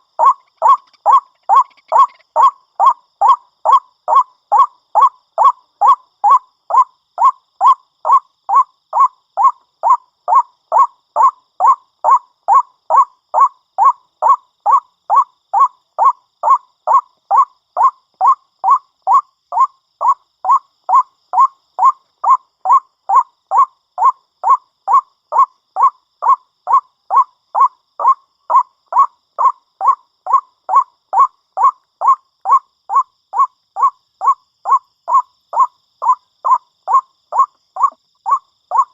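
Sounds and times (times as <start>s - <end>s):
waterhen calling: 0.2s - 2.5s.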